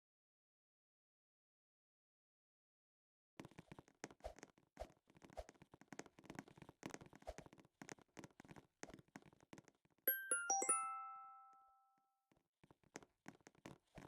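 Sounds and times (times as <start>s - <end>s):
faint clicks and taps: 3.4s - 10.0s, 12.6s - 14.0s
bright chime notes: 10.1s - 12.0s.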